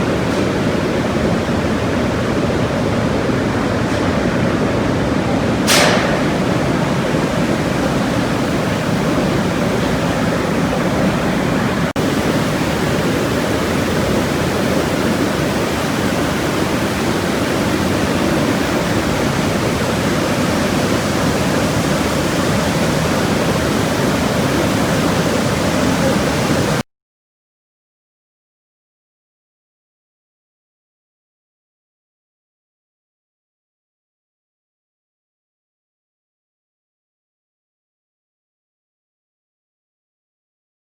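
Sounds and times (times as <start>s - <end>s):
waterfall roaring: 0.0s - 26.8s.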